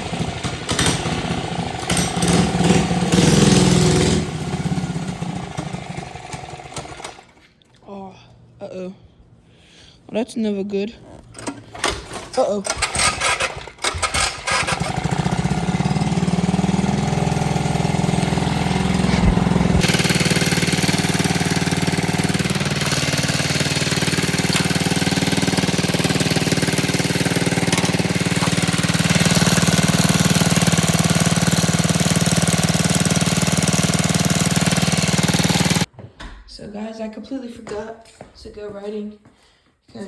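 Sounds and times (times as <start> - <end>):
small engine running: 0.0 - 7.3, 12.7 - 35.9.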